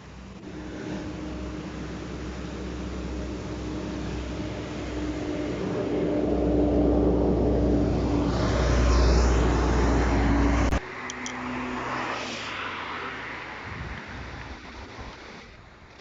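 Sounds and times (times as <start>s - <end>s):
diesel locomotive engine humming: 0.0s - 11.8s.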